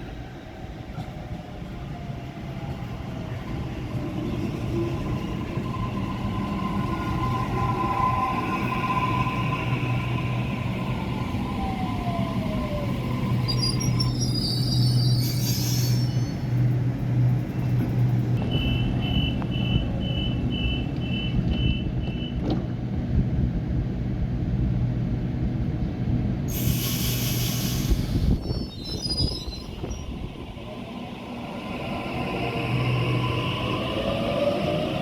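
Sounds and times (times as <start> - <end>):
train humming: 0.0 - 35.0
high wheel squeals: 13.4 - 16.6
loud air hiss: 26.5 - 28.6.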